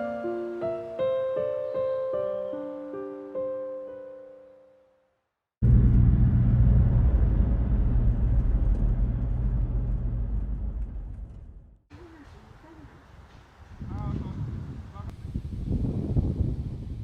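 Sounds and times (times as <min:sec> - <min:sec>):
piano music: 0:00.0 - 0:05.1
car engine and road noise: 0:05.6 - 0:11.9.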